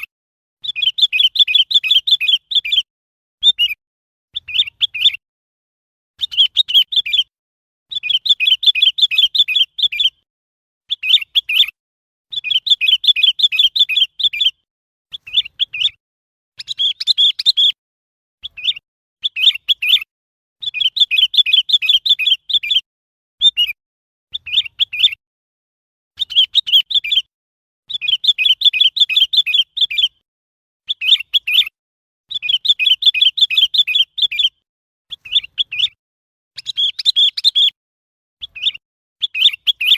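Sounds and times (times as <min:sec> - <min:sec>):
bird chattering calls: 0:16.6 - 0:17.8, 0:35.1 - 0:36.0, 0:36.6 - 0:37.8.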